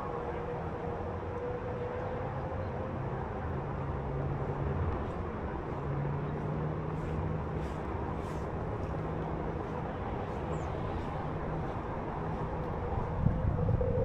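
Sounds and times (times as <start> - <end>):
city traffic rumble: 0.0 - 14.0
low hum shifting in pitch: 12.7 - 14.0.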